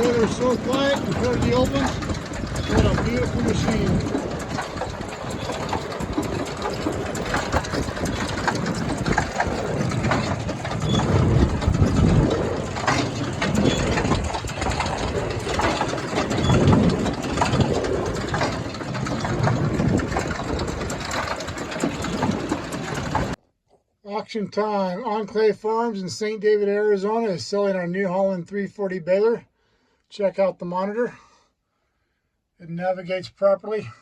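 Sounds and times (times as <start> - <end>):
baler mechanical clatter: 0.0 - 23.4
low baler thumps: 0.0 - 23.4
tractor engine: 0.0 - 23.4.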